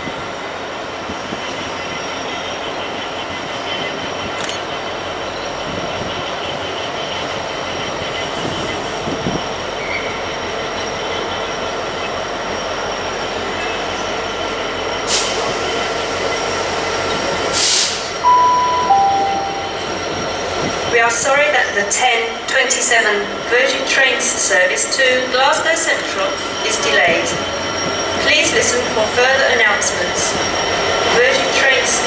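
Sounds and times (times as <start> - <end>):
diesel locomotive rumbling: 0.0 - 32.0
high wheel squeal: 5.4 - 21.5, 25.4 - 32.0
short air hisses: 17.6 - 18.1
two-note electronic chime: 18.2 - 20.2.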